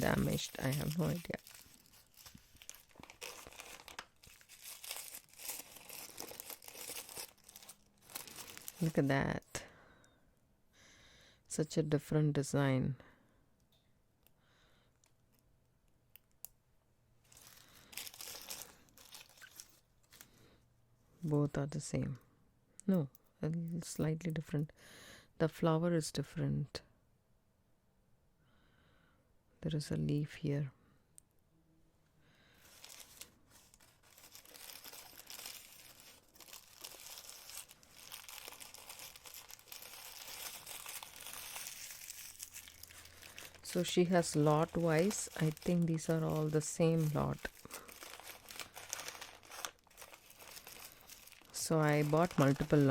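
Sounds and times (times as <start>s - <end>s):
packaging rustling and crinkling: 0.0s - 9.2s, 17.2s - 20.4s, 32.6s - 52.9s.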